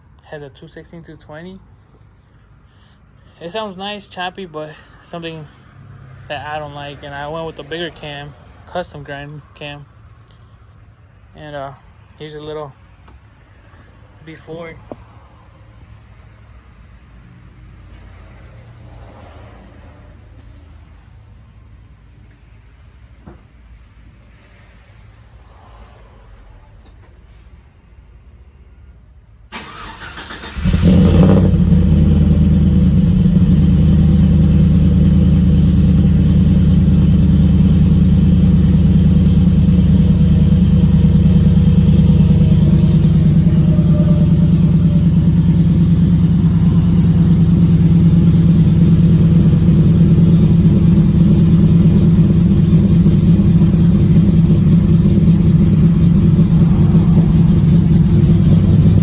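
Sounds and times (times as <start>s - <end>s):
truck engine choppy idle: 29.6s - 59.0s.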